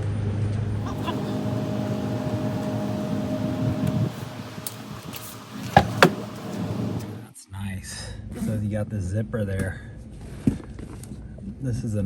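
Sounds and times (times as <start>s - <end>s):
steady mechanical hum: 0.7s - 7.3s.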